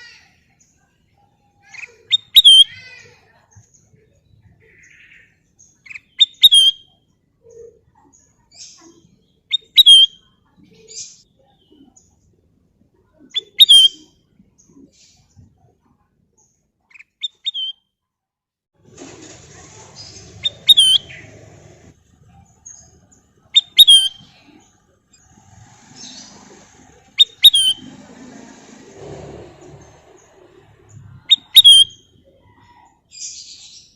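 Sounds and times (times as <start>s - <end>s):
bulbul whistled calls: 1.8s - 2.7s, 5.9s - 6.9s, 9.5s - 10.2s, 13.4s - 14.1s, 17.2s - 17.8s, 20.4s - 21.3s, 23.5s - 24.4s, 27.2s - 28.0s, 31.2s - 32.9s
rustling noise: 18.8s - 22.2s.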